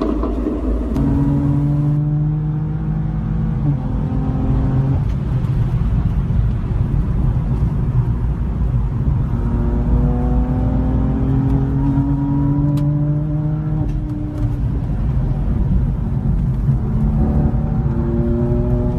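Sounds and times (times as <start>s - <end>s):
car engine rumbling: 0.0s - 18.9s.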